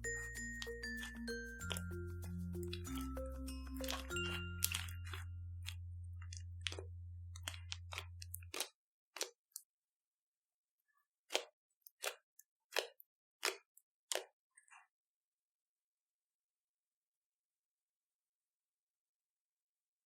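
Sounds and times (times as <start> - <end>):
slime being squished: 0.0 - 9.6, 11.3 - 14.3.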